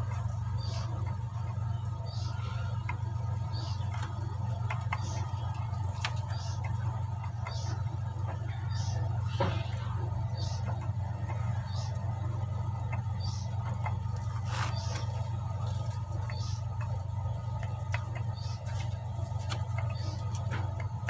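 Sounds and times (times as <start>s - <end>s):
steady low hum: 0.0s - 21.0s
faint clicks: 9.7s - 21.0s.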